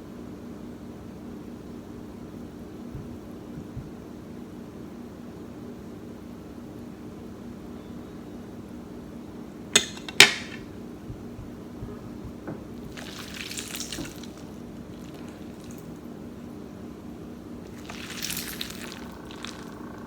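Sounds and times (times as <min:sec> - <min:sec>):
steady low hum: 0:07.8 - 0:20.0
tableware clinking: 0:09.8 - 0:10.7.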